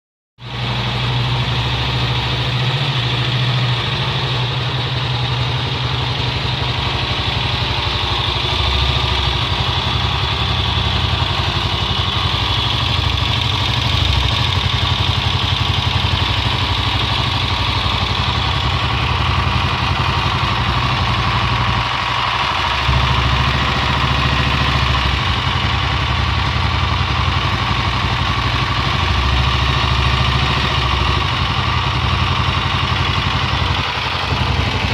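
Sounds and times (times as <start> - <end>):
motorcycle engine idling: 0.4 - 34.9
strange engine noise: 0.4 - 34.9.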